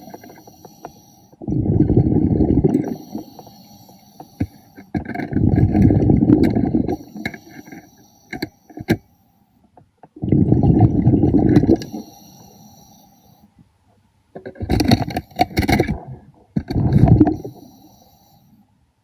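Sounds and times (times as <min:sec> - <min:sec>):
faint hiss of inhaling: 0:00.0 - 0:01.5, 0:02.8 - 0:05.0, 0:06.8 - 0:09.6, 0:11.8 - 0:13.6, 0:17.2 - 0:18.8
breath bubbling from regulator underwater: 0:01.4 - 0:03.5, 0:05.2 - 0:07.3, 0:10.2 - 0:12.1, 0:15.8 - 0:17.7.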